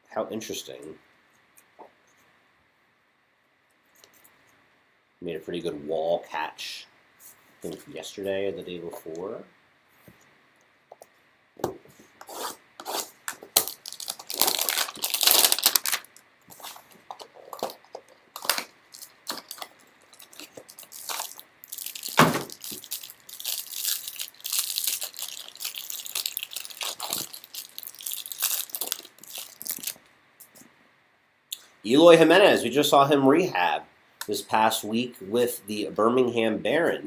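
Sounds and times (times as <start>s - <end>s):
cards rubbing and sliding: 12.2s - 13.4s
packaging tearing and crinkling: 12.3s - 30.0s.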